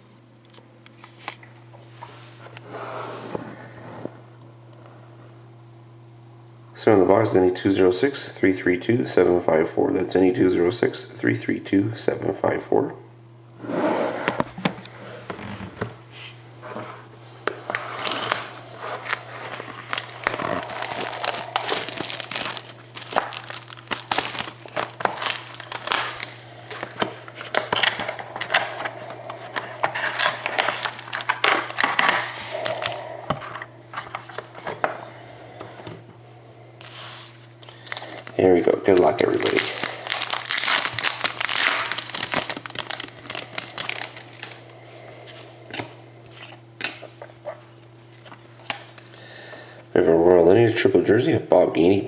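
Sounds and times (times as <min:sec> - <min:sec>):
steady low hum: 0:00.0 - 0:52.0
plastic wrapping crinkling and tearing: 0:18.0 - 0:33.0, 0:37.6 - 0:44.6.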